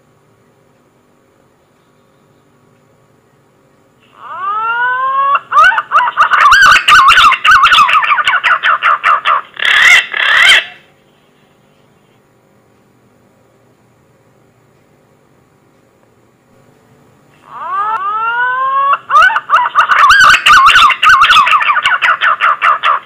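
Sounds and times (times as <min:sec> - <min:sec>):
faint steady hum: 0:00.0 - 0:23.0
whistled pigeon call: 0:17.6 - 0:22.2.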